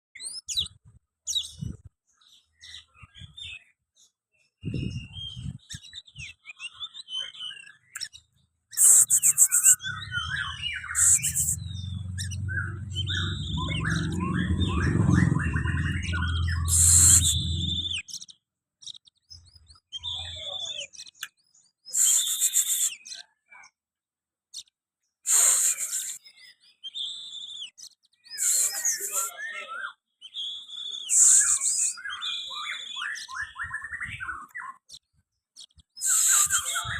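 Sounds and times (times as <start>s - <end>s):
bird singing whistles and trills: 0.2s - 23.8s, 24.6s - 36.9s
low rumble: 10.1s - 18.0s
harsh hissing bursts: 16.7s - 17.4s, 25.3s - 26.2s.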